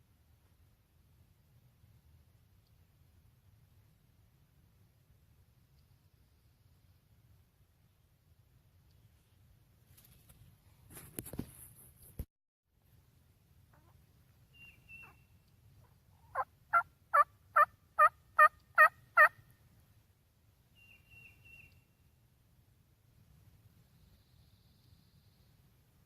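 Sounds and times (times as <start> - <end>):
turkey yelps: 15.8 - 19.4.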